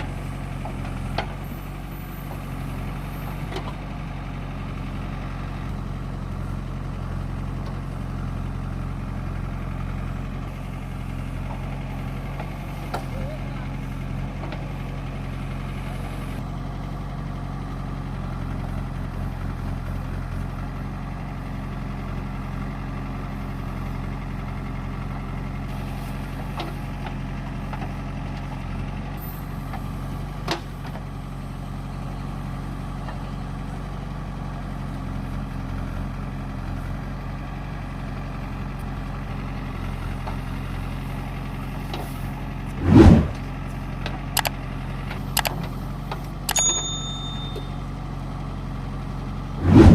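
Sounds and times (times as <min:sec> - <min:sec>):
heavy diesel engine running: 0:00.0 - 0:49.9
loud short thump: 0:42.8 - 0:43.4, 0:49.6 - 0:49.9.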